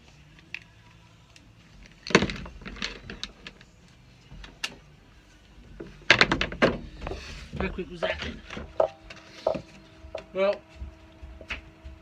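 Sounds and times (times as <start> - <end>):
plywood pieces clattering: 2.0 - 3.6, 5.8 - 9.6.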